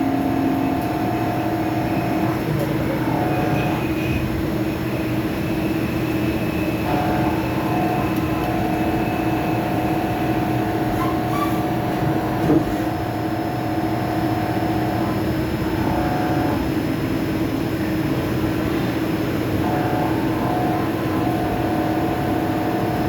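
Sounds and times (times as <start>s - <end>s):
higher machine tone: 0.0s - 4.2s
lathe machine hum: 0.0s - 23.0s.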